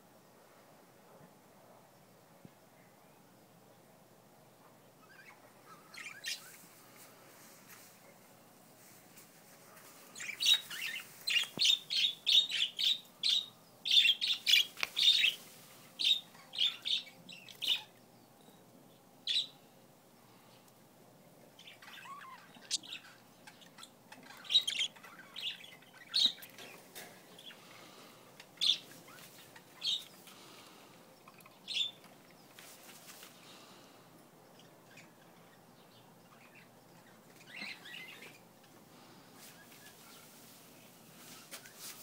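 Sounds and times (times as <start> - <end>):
budgerigars chirping: 10.2 - 15.4, 21.6 - 26.7, 31.2 - 32.0.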